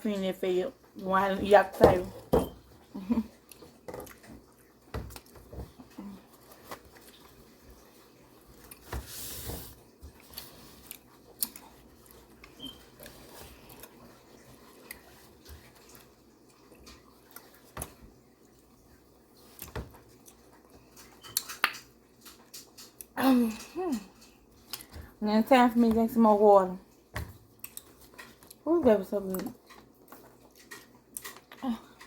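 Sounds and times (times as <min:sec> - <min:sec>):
person chewing: 0:03.4 - 0:08.9, 0:10.1 - 0:18.8, 0:19.4 - 0:23.2, 0:23.9 - 0:25.0, 0:27.5 - 0:28.6, 0:29.3 - 0:32.0.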